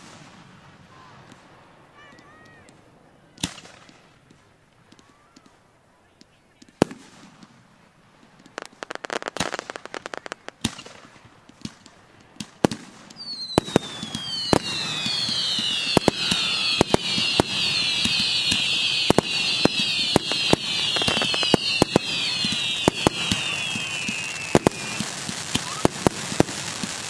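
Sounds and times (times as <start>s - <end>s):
firework bangs: 0.0s - 5.6s, 6.2s - 27.0s
shrill falling firework whistles: 13.2s - 27.0s.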